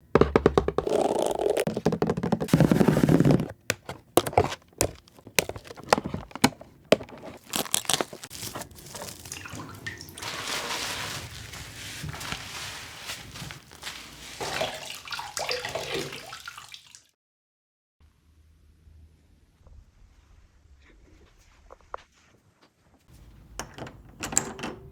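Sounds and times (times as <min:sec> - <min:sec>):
handling clicks and knocks: 0:00.0 - 0:07.5
tap water running into sink: 0:14.4 - 0:17.0.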